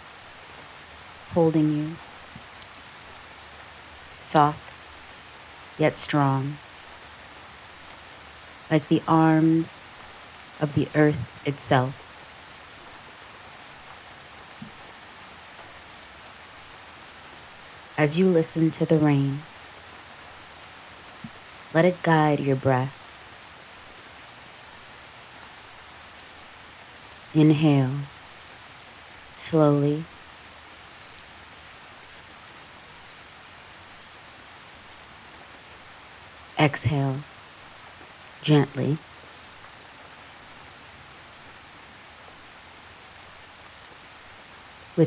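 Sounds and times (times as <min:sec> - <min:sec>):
gentle rain: 0:00.0 - 0:45.0
raindrops ticking: 0:00.4 - 0:17.9, 0:30.0 - 0:31.4.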